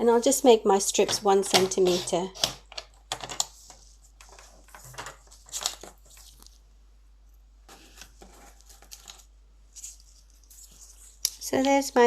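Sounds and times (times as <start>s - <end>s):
paper being cut: 1.6s - 2.6s
paper crinkling: 3.6s - 6.6s, 7.7s - 12.0s.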